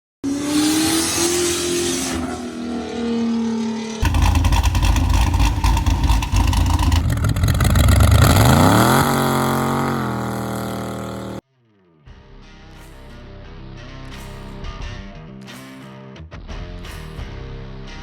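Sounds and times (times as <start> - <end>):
car engine revving hard: 0.2 - 11.4.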